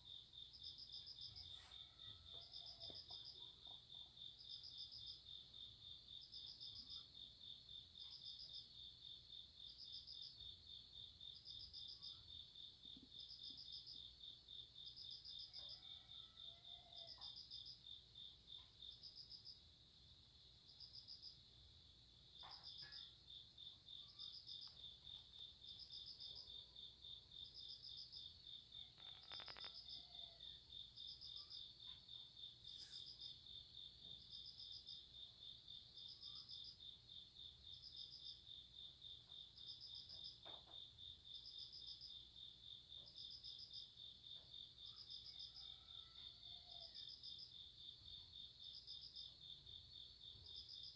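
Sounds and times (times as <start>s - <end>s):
higher cricket chirps: 0.1s - 50.9s
cricket pulsing trill: 23.9s - 33.4s.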